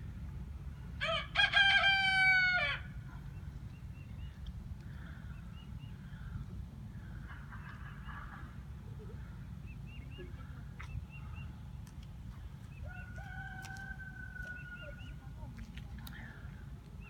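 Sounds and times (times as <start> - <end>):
rooster crowing: 1.0 - 2.9, 12.8 - 14.9
small birds chirping: 3.1 - 7.3, 8.8 - 17.0.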